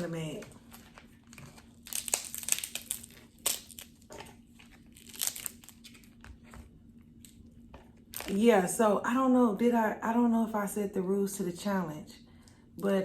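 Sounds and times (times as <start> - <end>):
crab legs cracking: 0.7 - 6.3.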